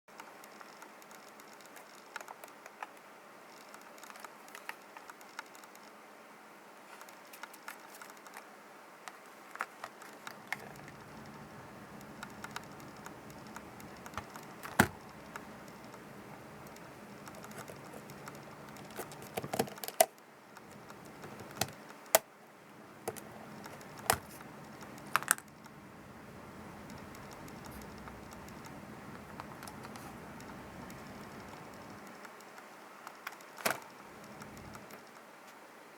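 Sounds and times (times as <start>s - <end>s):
plastic parts clicking and tapping: 9.1s - 16.0s, 16.6s - 22.3s, 23.0s - 25.8s, 26.8s - 35.3s.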